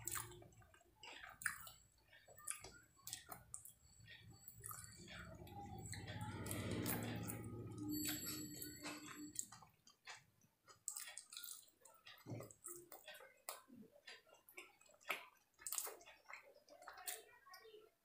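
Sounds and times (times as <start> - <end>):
wet chewing clicks and smacks: 0.0 - 4.9, 9.4 - 17.7.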